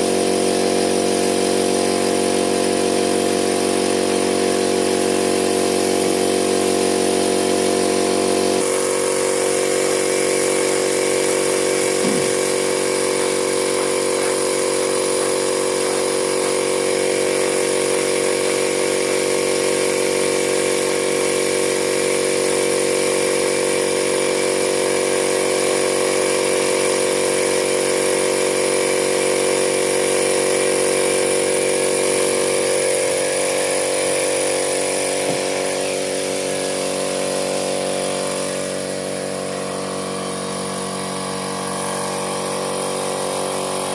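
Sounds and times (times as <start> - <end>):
motor humming: 11.5 - 12.8, 35.2 - 37.1
thin high whine: 11.9 - 12.7.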